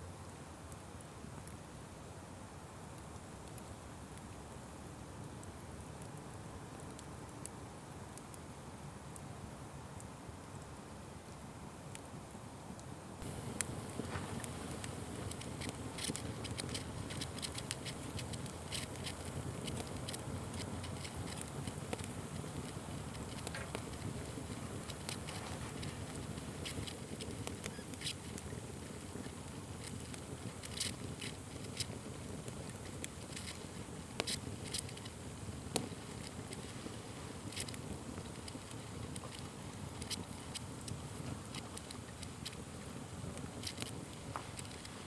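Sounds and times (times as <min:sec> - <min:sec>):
fire crackles and pops: 0:00.1 - 0:45.0
wood fire rushing: 0:13.2 - 0:45.0.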